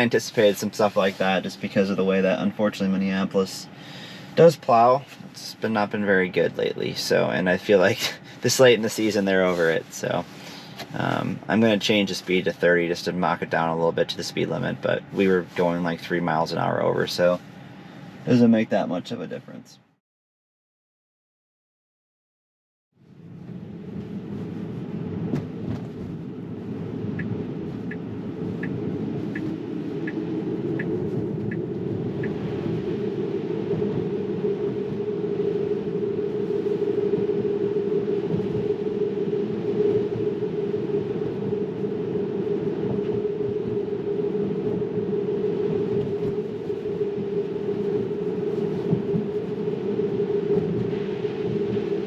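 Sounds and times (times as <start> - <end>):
road and tyre rumble in car: 0.0 - 19.6, 23.0 - 52.0
turn signal ticking: 27.1 - 32.4.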